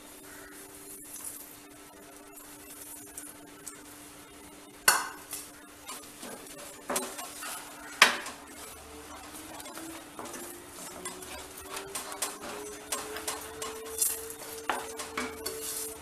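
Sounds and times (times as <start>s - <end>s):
spoon clinking against pan: 4.9s - 16.0s
spoon stirring thick mixture: 4.9s - 16.0s.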